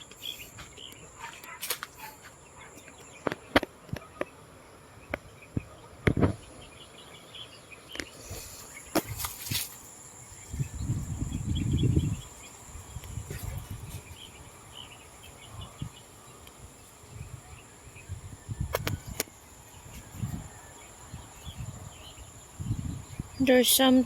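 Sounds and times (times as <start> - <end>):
insects buzzing trill: 0.0 - 3.6, 6.2 - 24.0
low rumbling gusts: 10.2 - 23.5.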